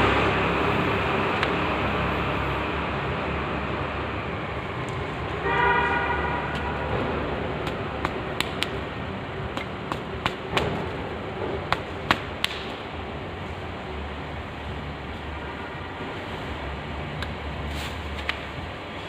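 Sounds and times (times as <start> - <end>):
sharp clicks and knocks: 6.5 - 8.9, 9.5 - 12.8.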